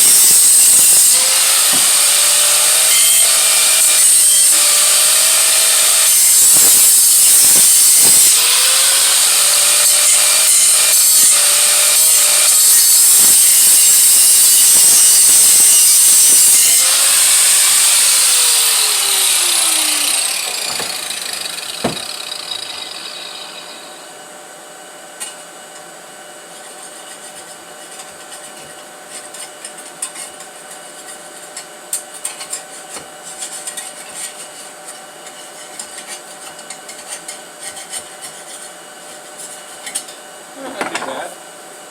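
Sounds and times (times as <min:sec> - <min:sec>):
power grinder grinding metal: 0:00.0 - 0:24.2.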